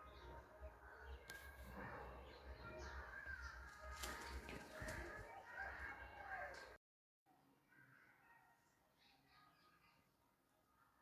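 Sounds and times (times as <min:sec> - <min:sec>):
distant birds calling: 0:00.0 - 0:06.8.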